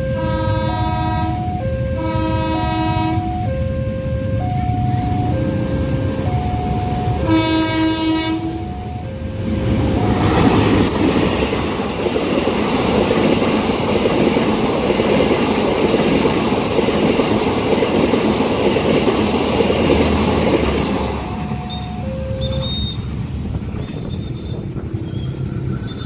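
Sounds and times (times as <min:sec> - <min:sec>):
train wheels clattering on rails: 0:09.5 - 0:21.3.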